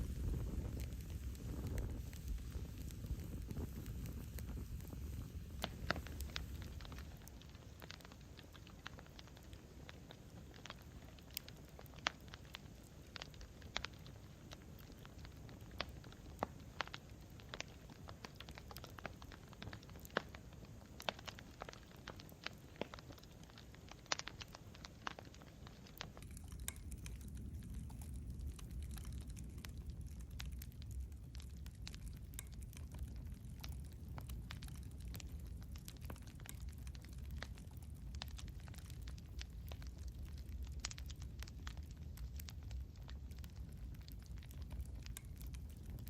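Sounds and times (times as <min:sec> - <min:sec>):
campfire crackling and popping: 0:00.0 - 0:46.0
low rumble of flames: 0:00.0 - 0:46.0.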